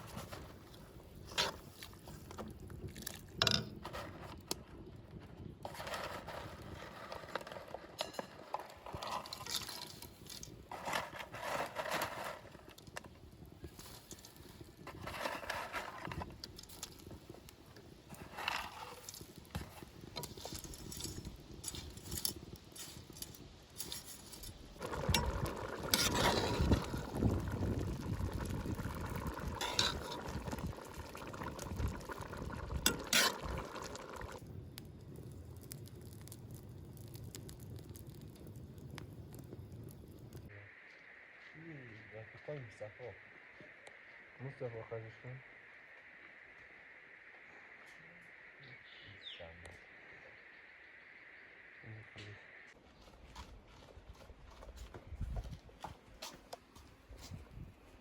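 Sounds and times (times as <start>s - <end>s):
utensils clinking and scraping pots: 5.6s - 12.6s, 18.1s - 27.2s, 29.4s - 34.4s.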